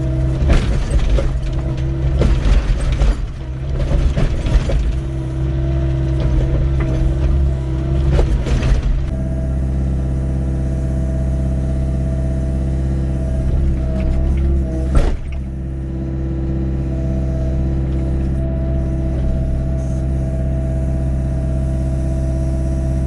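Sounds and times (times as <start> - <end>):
excavator engine running: 0.0 - 23.0
hydraulic whine: 0.0 - 23.0.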